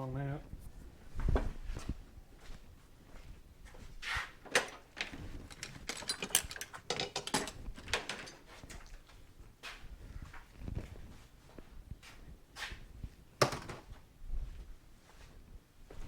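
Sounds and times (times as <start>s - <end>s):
metal tools clinking: 4.4s - 9.0s.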